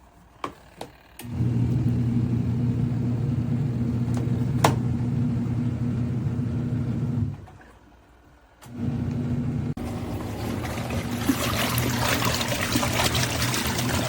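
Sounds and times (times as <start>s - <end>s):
washing machine motor hum: 0.4s - 14.0s.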